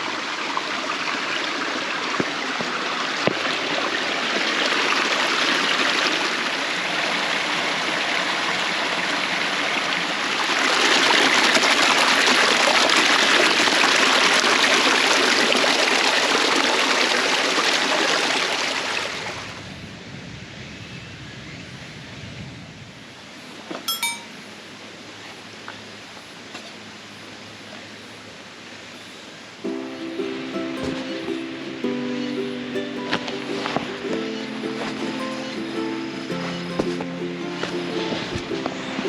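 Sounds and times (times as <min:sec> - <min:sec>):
water running: 0:29.7 - 0:39.0.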